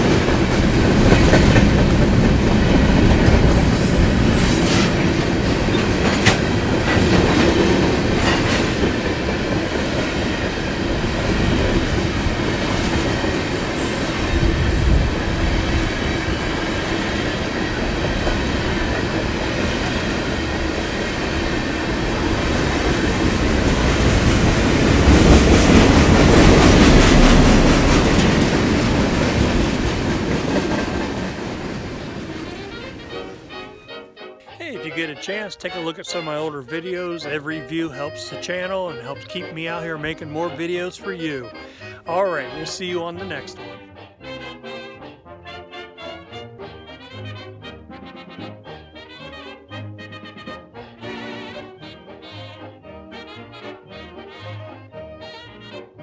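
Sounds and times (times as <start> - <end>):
steel wheels clacking over rail joints: 0.0 - 33.5
high wheel squeal: 0.8 - 2.4, 3.0 - 5.9, 11.0 - 17.4.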